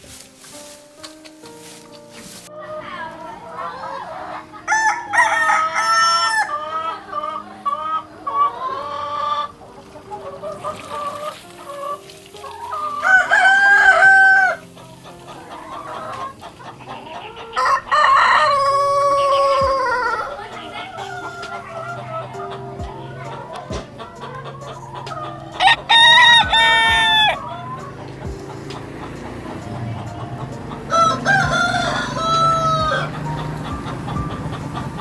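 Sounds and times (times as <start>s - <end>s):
clucking calls: 0.0s - 35.0s
rooster crowing: 3.8s - 7.7s, 12.6s - 14.8s, 17.5s - 24.8s, 25.6s - 35.0s.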